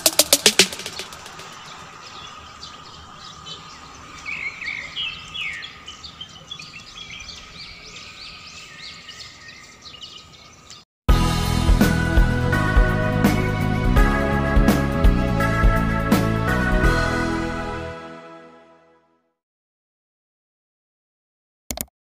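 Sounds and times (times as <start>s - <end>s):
birds chirping: 0.0s - 10.9s
background music: 11.1s - 19.2s.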